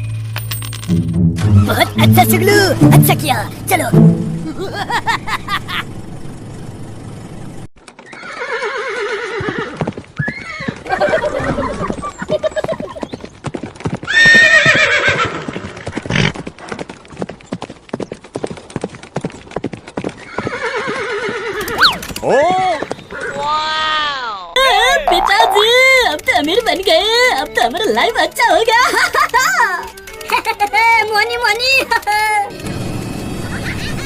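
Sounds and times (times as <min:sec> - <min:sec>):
clip-clop of hooves: 0:07.8 - 0:23.8, 0:25.6 - 0:32.3
horse whinnying: 0:08.1 - 0:12.0, 0:14.1 - 0:16.4, 0:20.2 - 0:23.6.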